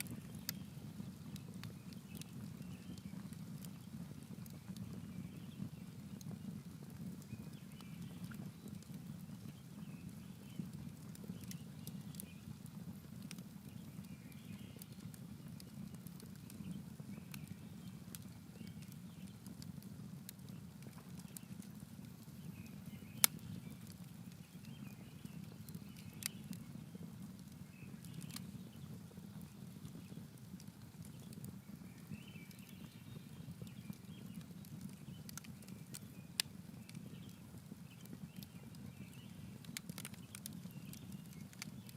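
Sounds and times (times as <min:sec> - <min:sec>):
campfire crackling: 0:00.0 - 0:41.9
sharp pops of fire: 0:22.5 - 0:26.7.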